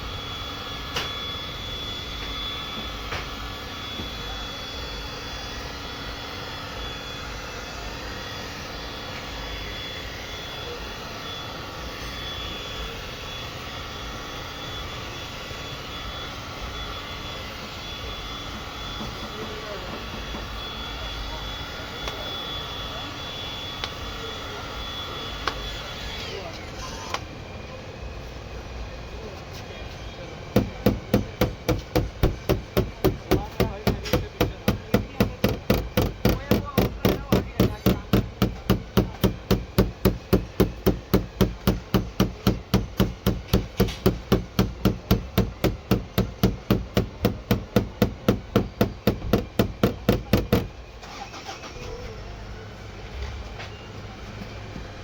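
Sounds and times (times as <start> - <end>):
hammer tapping on sheet metal: 30.6 - 50.7.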